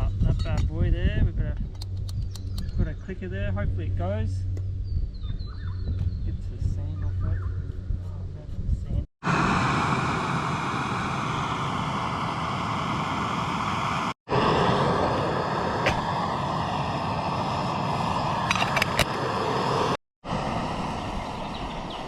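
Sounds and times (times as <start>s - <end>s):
gas stove flame hissing: 9.3s - 22.0s.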